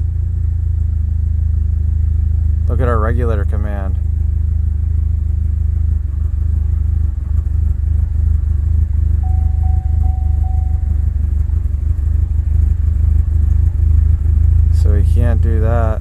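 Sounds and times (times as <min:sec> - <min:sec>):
car engine idling rough: 0:00.0 - 0:16.0
thin steady tone: 0:09.2 - 0:11.5.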